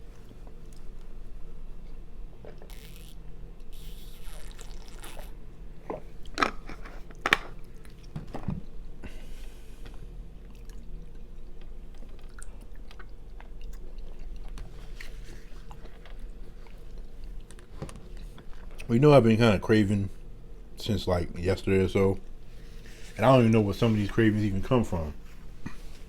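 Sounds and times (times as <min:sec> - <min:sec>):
close chewing of soup: 0:10.0 - 0:18.8.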